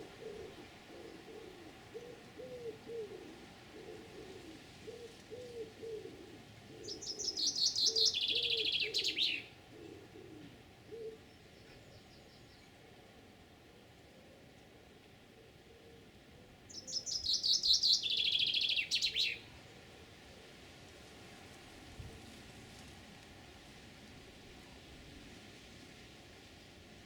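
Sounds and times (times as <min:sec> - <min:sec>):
pigeon cooing: 0:00.0 - 0:07.3, 0:07.9 - 0:11.3
songbird trilled song: 0:06.8 - 0:09.5, 0:16.7 - 0:19.4.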